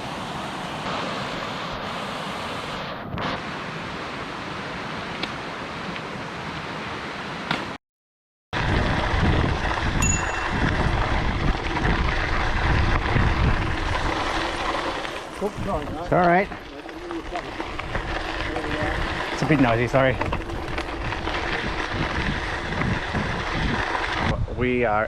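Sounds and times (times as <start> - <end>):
bike tyres rolling on trail: 8.6 - 25.0
wind buffeting microphone: 8.6 - 25.0.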